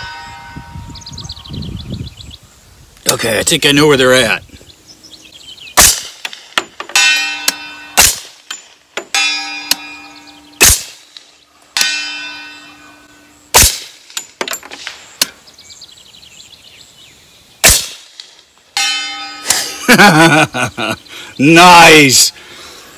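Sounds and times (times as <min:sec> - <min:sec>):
suppressed gunshots: 0:05.8 - 0:06.6, 0:08.0 - 0:08.4, 0:10.6 - 0:11.1, 0:13.5 - 0:14.1, 0:17.6 - 0:18.3
steel target clanging: 0:05.8 - 0:11.2, 0:11.8 - 0:15.0, 0:17.6 - 0:19.6.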